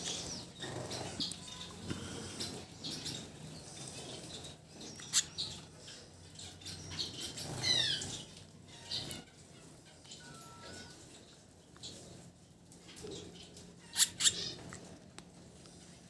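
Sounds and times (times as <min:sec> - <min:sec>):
baby bird chirping: 0:00.0 - 0:03.3, 0:04.2 - 0:09.4, 0:10.0 - 0:11.1, 0:13.8 - 0:14.7.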